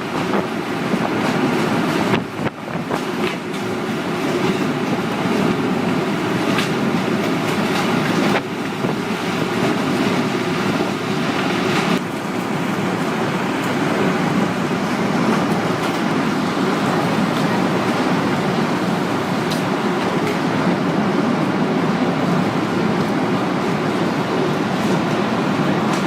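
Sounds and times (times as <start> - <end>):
tornado winds rushing: 0.0 - 26.0.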